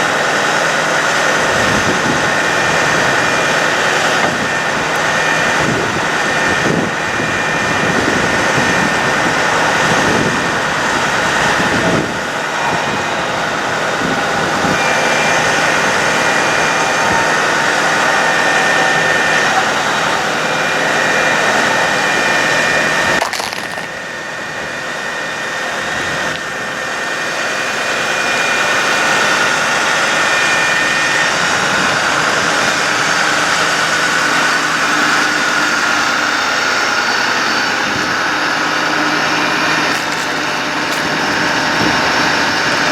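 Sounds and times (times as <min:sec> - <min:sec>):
faint high whine: 0:00.0 - 0:42.9
truck engine running: 0:00.0 - 0:42.9.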